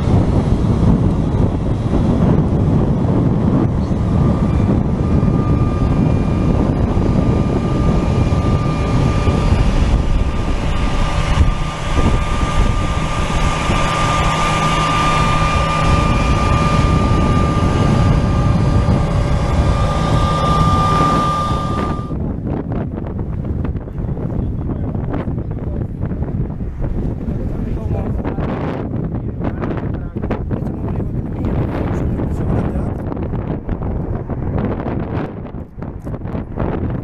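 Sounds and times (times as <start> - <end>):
jet engines whining: 0.0 - 37.0
wind buffeting microphone: 0.0 - 37.0.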